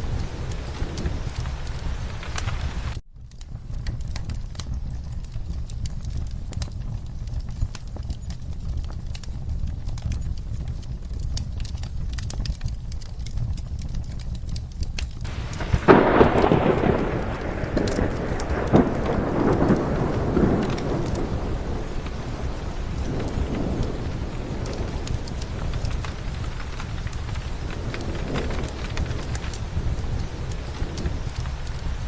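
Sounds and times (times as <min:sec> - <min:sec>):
thunderclap rolling: 0:00.0 - 0:14.6, 0:15.2 - 0:32.0
steady rain: 0:00.0 - 0:32.0.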